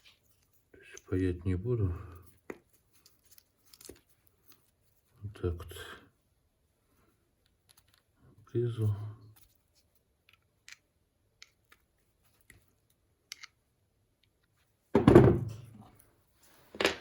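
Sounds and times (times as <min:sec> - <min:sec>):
metal parts clicking: 0:13.3 - 0:13.6
loud thump on workbench: 0:15.0 - 0:15.6.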